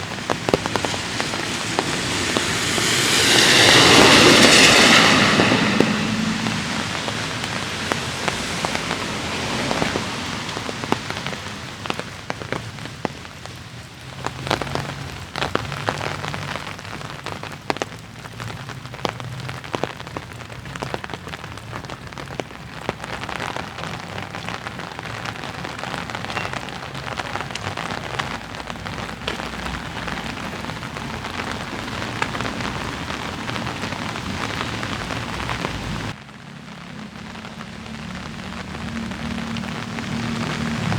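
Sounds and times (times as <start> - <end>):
low rumble: 0.0 - 12.2
light rain hiss: 0.0 - 40.9
raindrops ticking on hard surfaces: 0.0 - 40.9.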